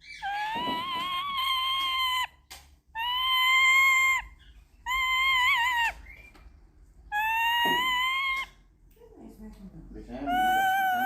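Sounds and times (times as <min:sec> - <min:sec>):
bird calling: 0:00.0 - 0:02.4, 0:03.0 - 0:06.5, 0:07.1 - 0:08.6, 0:10.2 - 0:11.0.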